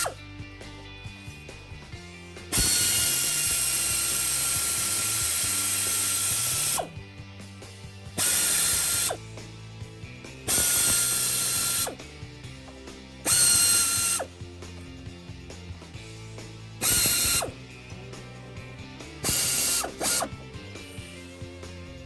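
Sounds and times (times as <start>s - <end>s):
air ratchet hissing and whining: 0.0s - 7.0s, 7.6s - 9.5s, 10.2s - 12.2s, 12.8s - 14.4s, 15.9s - 17.9s, 19.0s - 21.4s.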